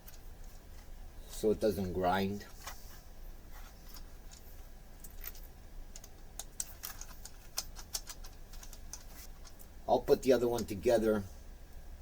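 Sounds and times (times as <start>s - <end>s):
plastic parts clicking and tapping: 3.9s - 9.7s.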